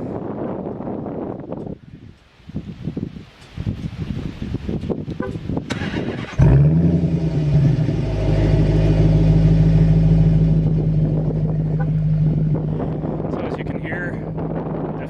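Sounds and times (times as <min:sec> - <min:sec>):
wind buffeting microphone: 0:00.0 - 0:15.0
car exhaust rumble: 0:04.9 - 0:15.0.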